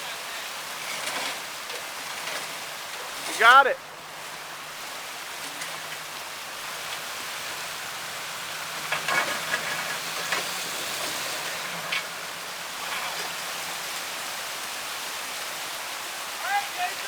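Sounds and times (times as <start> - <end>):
water rushing over waterfall: 0.0 - 17.0
engine running low: 3.9 - 14.4.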